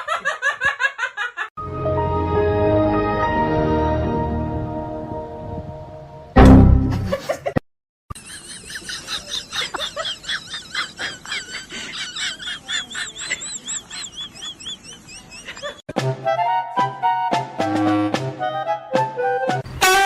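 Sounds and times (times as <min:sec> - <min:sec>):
loud thump with low rumble: 0:06.4 - 0:07.1.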